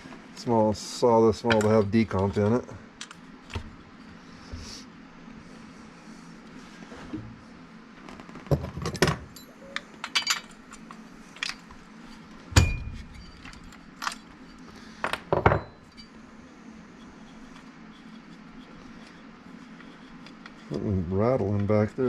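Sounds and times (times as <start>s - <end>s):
steady low hum: 0.0s - 22.0s
metal tools clinking: 9.3s - 11.6s, 12.6s - 14.6s.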